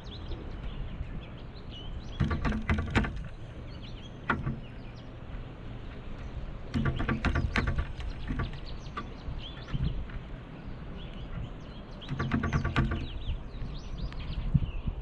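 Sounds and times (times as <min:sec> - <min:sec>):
low background rumble: 0:00.0 - 0:15.0
small birds chirping: 0:00.0 - 0:15.0
woodpecker tapping: 0:02.0 - 0:10.3, 0:11.0 - 0:13.6.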